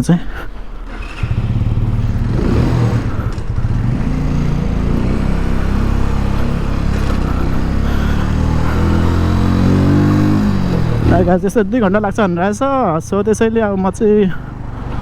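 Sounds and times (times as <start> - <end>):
motorcycle engine accelerating: 0.5 - 15.0.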